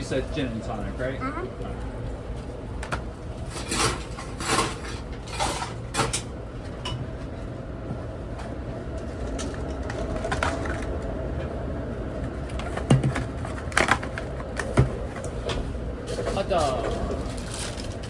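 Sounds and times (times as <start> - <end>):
moving train rumble: 0.0 - 18.0.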